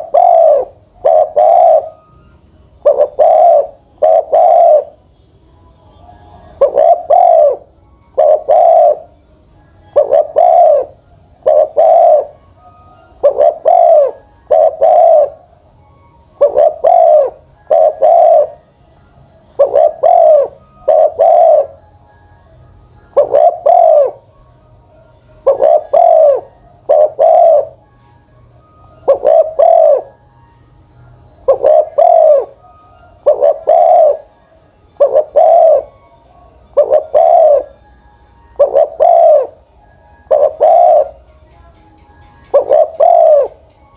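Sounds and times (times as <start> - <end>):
dove cooing: 0.0 - 5.0, 6.4 - 9.2, 9.8 - 15.5, 16.4 - 18.6, 19.5 - 21.8, 23.1 - 24.3, 25.4 - 27.9, 28.9 - 30.2, 31.4 - 36.0, 36.7 - 37.8, 38.6 - 41.3, 42.4 - 43.7.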